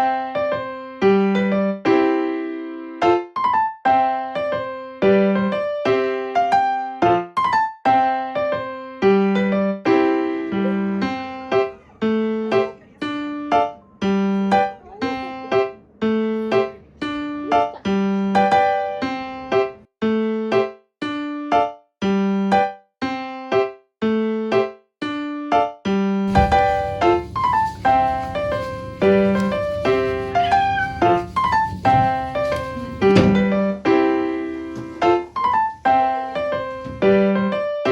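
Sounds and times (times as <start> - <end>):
gentle piano melody: 0.0 - 37.9.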